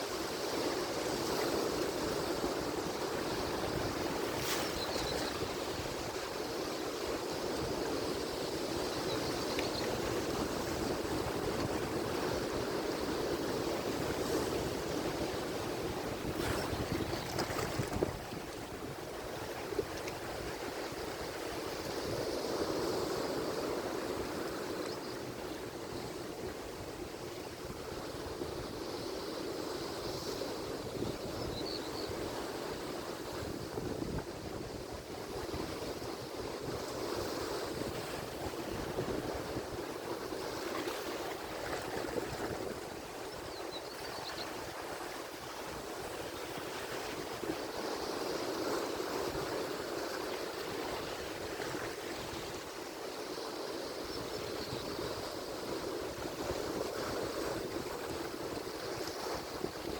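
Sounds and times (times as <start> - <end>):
ocean waves breaking: 10.0 - 27.0.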